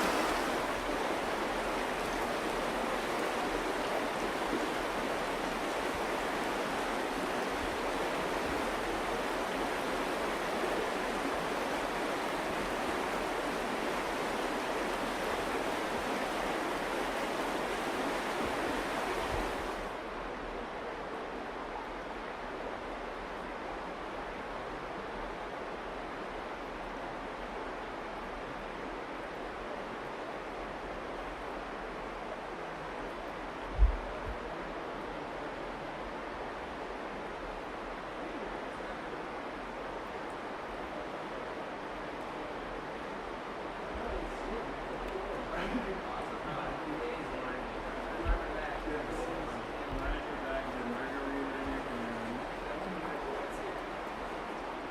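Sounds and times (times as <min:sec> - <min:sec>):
river water rushing: 0:00.0 - 0:54.9
low thump: 0:33.8 - 0:34.4.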